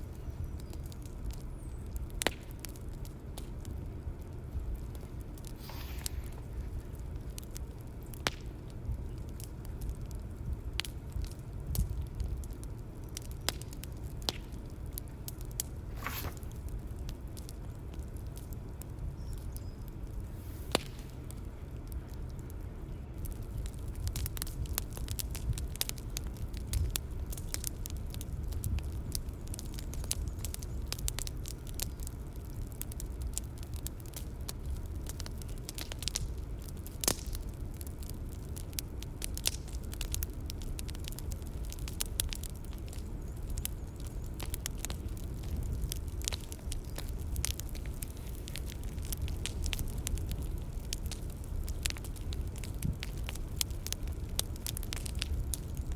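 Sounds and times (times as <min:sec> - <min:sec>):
bonfire rumbling: 0:00.0 - 0:55.9
fire pops and snaps: 0:00.1 - 0:55.9.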